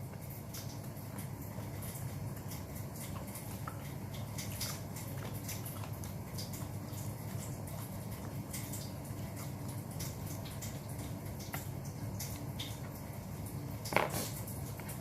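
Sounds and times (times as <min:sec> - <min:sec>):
wet chewing mouth clicks: 0:00.4 - 0:10.8.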